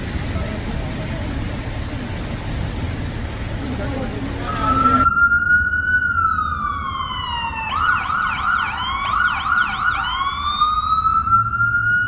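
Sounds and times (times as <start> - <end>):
low engine rumble: 0.0 - 12.0
emergency vehicle siren: 4.3 - 12.0.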